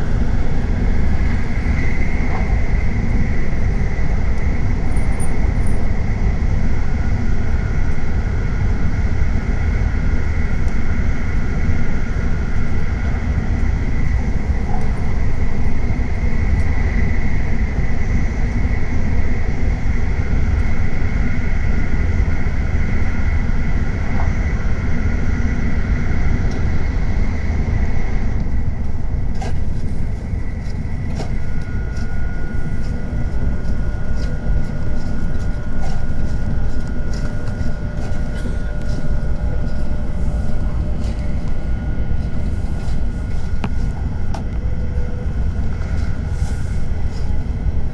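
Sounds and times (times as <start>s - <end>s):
train rumbling at speed: 0.0s - 47.9s
faint whining tones: 20.4s - 47.9s.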